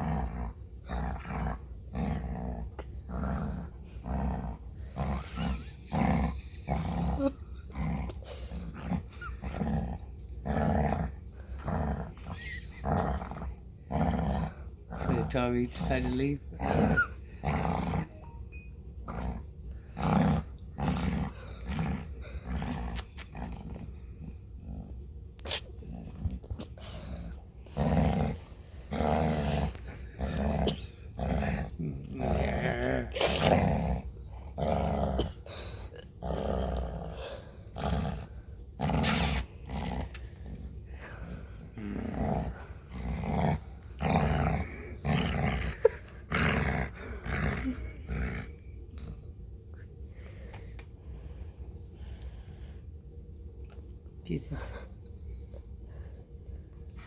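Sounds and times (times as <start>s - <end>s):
dog growling: 0.0s - 18.4s, 19.0s - 49.2s.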